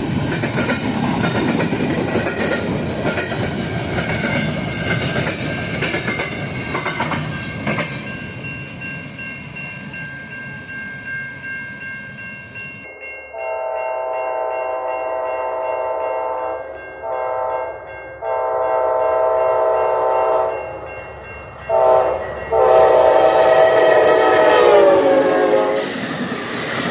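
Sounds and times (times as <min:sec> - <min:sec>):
train rumbling with rail clatter: 0:00.0 - 0:12.9, 0:16.8 - 0:26.9
high ringing tones: 0:06.6 - 0:23.1
locomotive air horn blasts: 0:13.4 - 0:20.6, 0:21.7 - 0:25.9.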